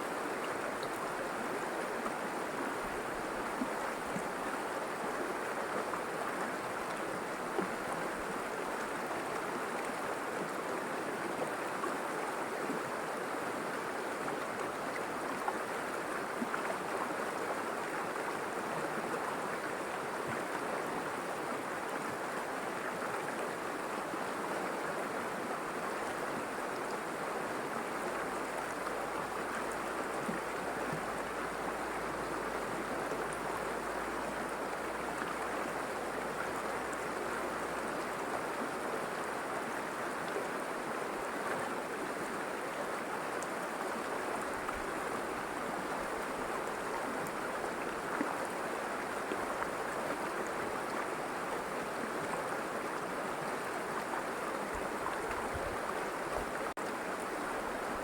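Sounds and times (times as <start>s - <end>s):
river water babbling: 0.0s - 58.0s.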